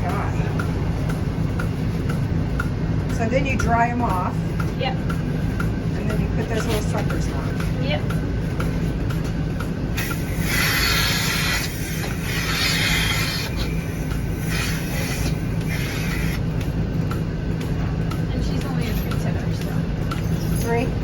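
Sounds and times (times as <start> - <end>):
milking machine humming: 3.9 - 21.0
hissing air bursts: 10.0 - 16.4.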